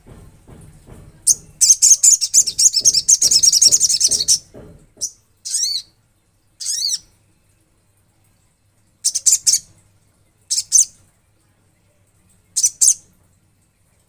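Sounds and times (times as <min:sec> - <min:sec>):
bird singing high trill: 0:05.0 - 0:05.9, 0:06.6 - 0:07.2.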